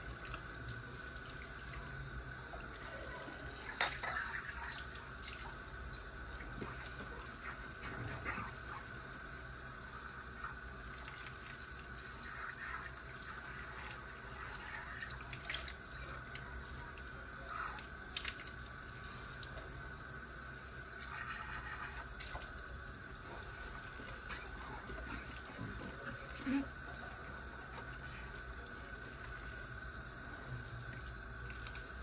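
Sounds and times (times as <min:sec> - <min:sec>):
tap water running into sink: 0:00.0 - 0:08.7.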